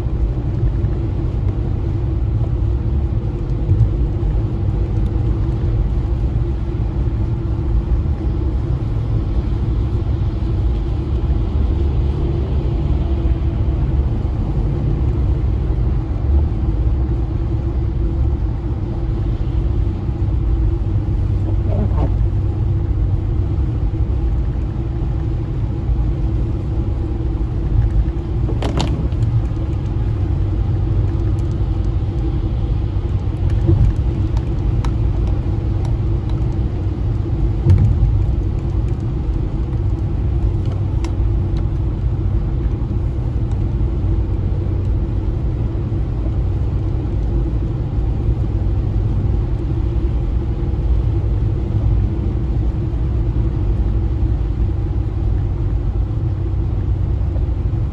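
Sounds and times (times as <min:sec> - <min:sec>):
car engine and road rumble: 0:00.0 - 0:57.9.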